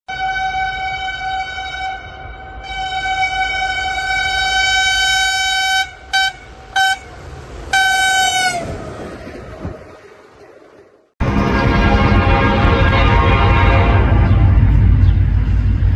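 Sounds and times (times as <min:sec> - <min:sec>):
train horn blasts: 0:00.1 - 0:08.8, 0:11.2 - 0:15.0
passing train rumble: 0:00.1 - 0:15.9.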